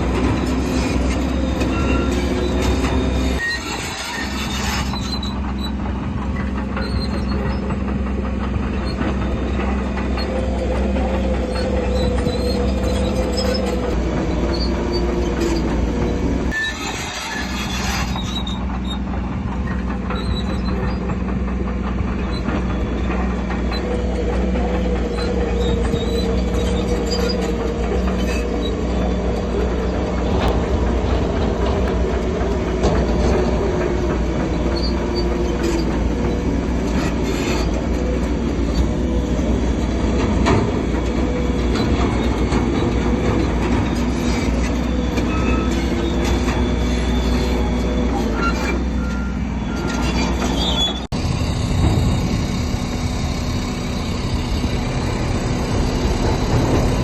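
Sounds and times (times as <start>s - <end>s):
squealing metallic whine: 0.0s - 8.1s, 8.7s - 21.3s, 22.2s - 57.0s
diesel engine running: 0.0s - 57.0s
tracks clanking: 0.0s - 57.0s.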